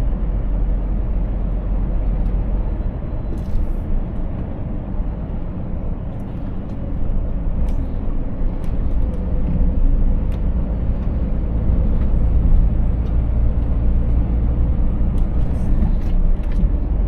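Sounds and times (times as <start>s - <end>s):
road noise: 0.0s - 17.0s
truck diesel engine rumbling: 0.0s - 17.0s.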